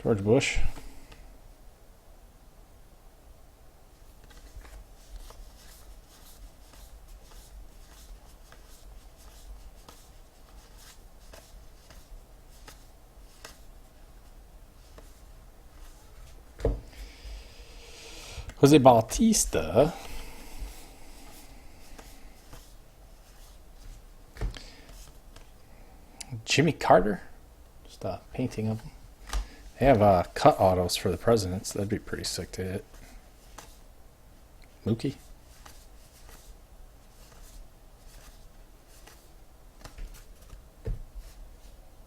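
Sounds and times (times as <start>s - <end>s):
trading cards sliding and flicking: 4.2s - 13.7s, 19.9s - 25.6s, 32.9s - 33.8s, 35.5s - 41.4s
short thump: 16.6s - 16.9s
trading cards flipped: 37.2s - 40.6s.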